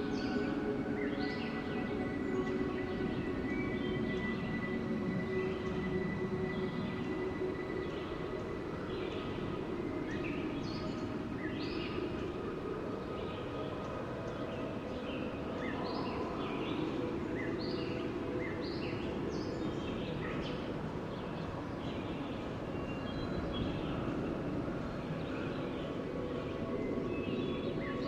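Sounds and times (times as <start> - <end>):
wind: 0.0 - 28.0.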